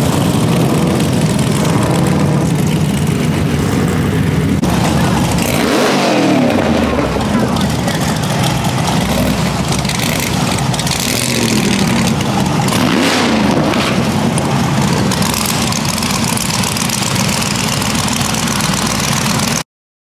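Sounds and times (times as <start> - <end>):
car engine revving: 0.0 - 19.6
car engines idling: 0.0 - 19.6.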